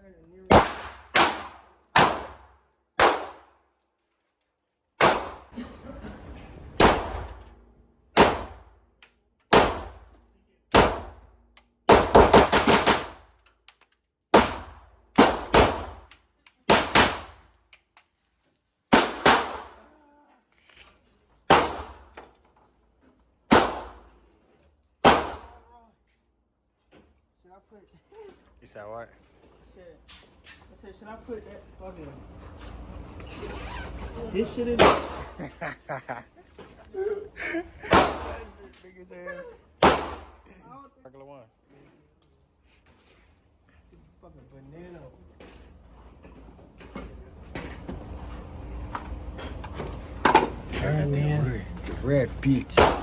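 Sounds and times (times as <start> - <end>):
gunshots: 0.5 - 3.5, 5.0 - 5.6, 6.8 - 7.3, 8.2 - 8.6, 9.5 - 10.0, 10.7 - 11.2, 11.9 - 13.2, 14.3 - 16.0, 16.7 - 17.4, 18.9 - 19.8, 21.5 - 22.1, 23.5 - 24.1, 25.0 - 25.6, 34.8 - 35.4, 37.8 - 38.5, 39.8 - 40.4, 52.8 - 53.0.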